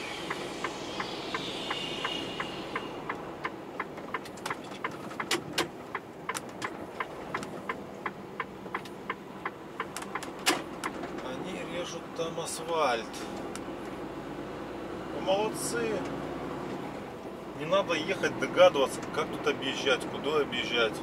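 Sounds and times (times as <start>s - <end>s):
faint hiss: 0.0s - 3.5s
truck engine and road hum: 0.0s - 21.0s.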